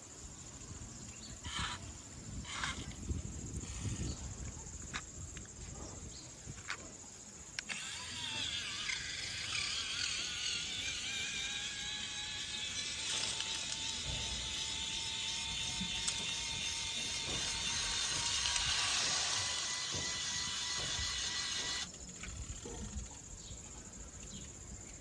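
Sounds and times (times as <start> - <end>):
toy electric motor whining: 1.4 - 1.8, 2.4 - 2.9, 7.6 - 23.1.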